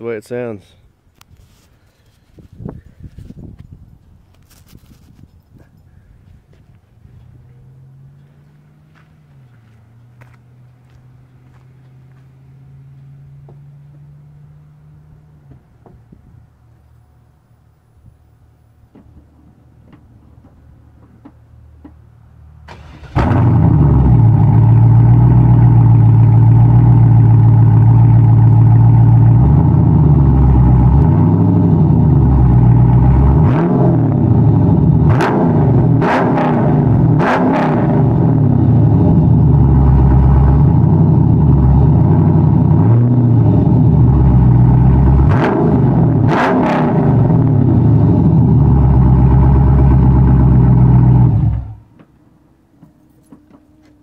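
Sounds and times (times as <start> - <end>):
car engine starting and idling: 6.9 - 54.0
engine revving: 22.6 - 51.8.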